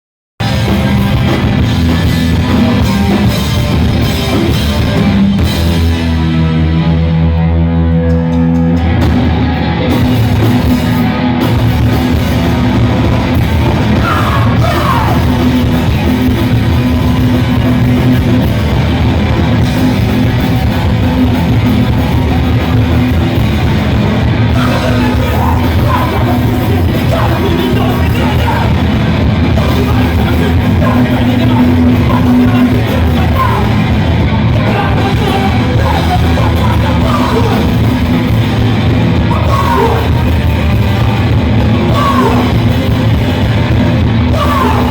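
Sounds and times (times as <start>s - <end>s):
punk rock band playing live: 0.4s - 44.9s
person yelling vocals: 13.9s - 15.4s, 24.5s - 28.8s, 29.6s - 33.8s, 34.6s - 37.8s, 39.3s - 40.2s, 41.8s - 42.6s, 44.3s - 44.9s.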